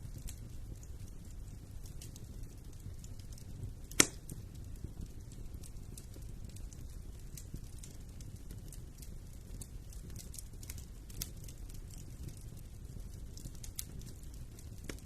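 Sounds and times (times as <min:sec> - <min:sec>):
wood fire crackling: 0:00.0 - 0:15.0
sharp pop from fire: 0:03.9 - 0:04.4.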